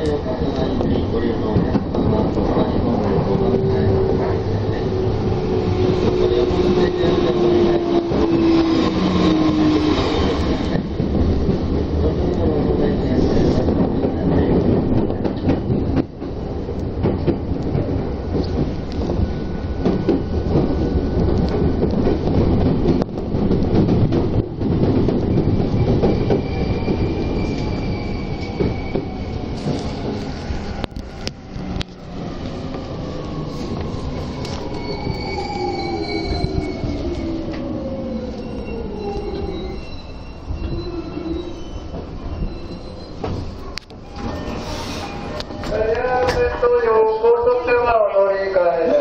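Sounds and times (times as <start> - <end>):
passing train rush: 0.0 - 49.0
train rail rumble: 0.0 - 49.0.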